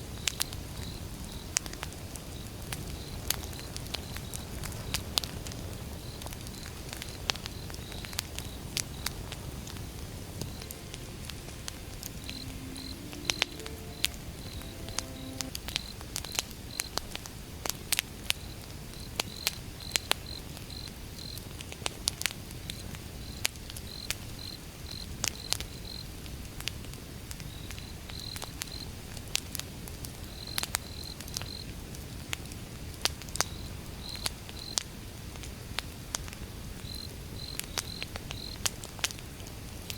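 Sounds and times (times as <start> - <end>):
crickets chirping: 6.0 - 15.9.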